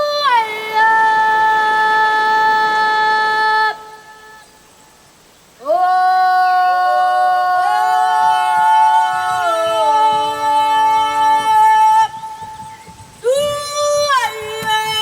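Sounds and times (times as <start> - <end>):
children's choir singing: 5.7 - 15.0.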